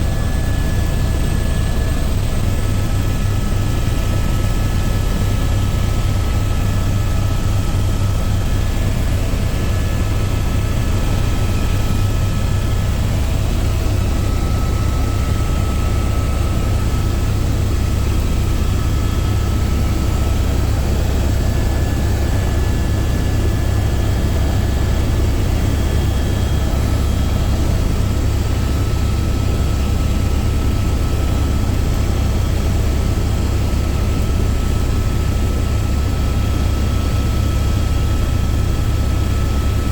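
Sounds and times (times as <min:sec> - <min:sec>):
faint steady whining tones: 0:00.0 - 0:39.9
helicopter engine and rotor: 0:00.0 - 0:39.9.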